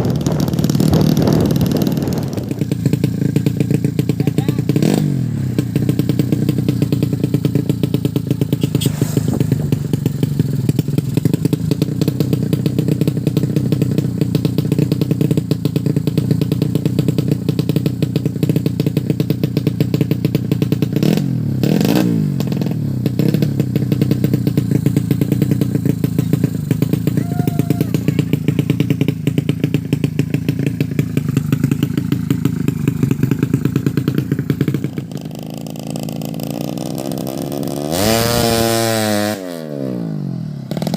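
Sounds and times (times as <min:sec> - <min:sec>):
motorcycle engine fast idle: 0:00.0 - 0:21.6, 0:22.3 - 0:37.3.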